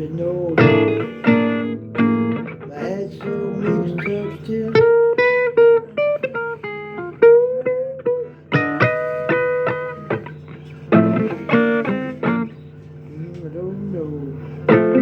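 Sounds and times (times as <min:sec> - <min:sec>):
blues guitar playing: 0:00.0 - 0:15.0.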